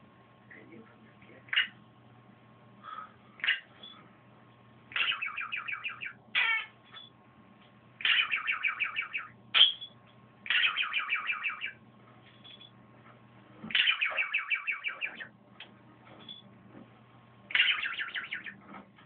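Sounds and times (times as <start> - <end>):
budgerigar pulsed chirps: 4.9 - 6.8, 8.0 - 11.8, 13.7 - 15.3, 17.5 - 18.6
budgerigar falling squawk: 13.7 - 15.2.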